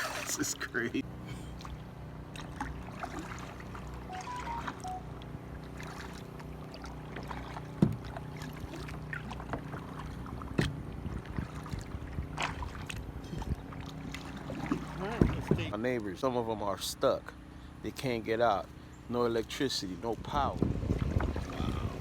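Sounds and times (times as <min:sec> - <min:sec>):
paddle dips and splashes: 0:00.0 - 0:00.6, 0:01.4 - 0:15.9, 0:20.2 - 0:22.0.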